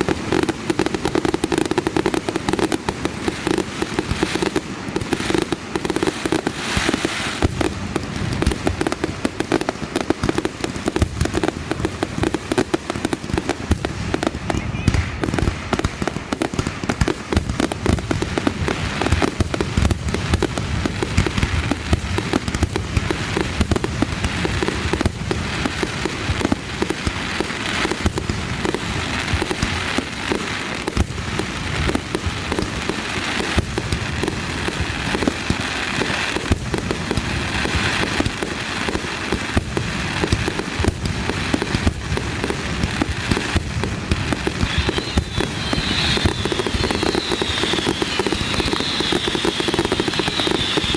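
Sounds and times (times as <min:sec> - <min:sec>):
fireworks booming and crackling: 0:00.0 - 0:50.9
high firework whistle: 0:44.2 - 0:50.9.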